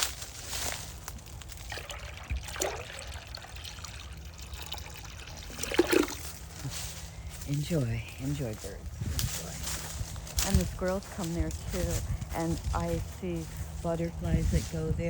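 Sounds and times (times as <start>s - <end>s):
water trickling: 0.4s - 8.6s.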